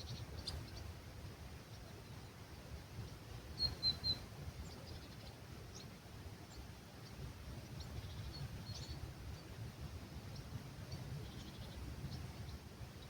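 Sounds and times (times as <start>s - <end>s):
small birds chirping: 0.0s - 1.0s, 3.0s - 9.6s, 10.3s - 13.0s
low rumble of breeze: 0.0s - 13.0s.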